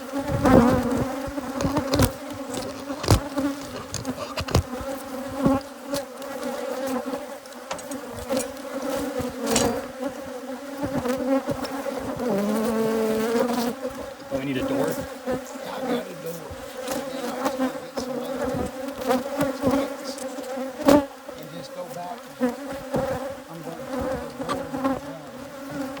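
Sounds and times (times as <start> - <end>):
bees buzzing: 0.0 - 26.0
sharp knocks and taps: 1.2 - 5.6.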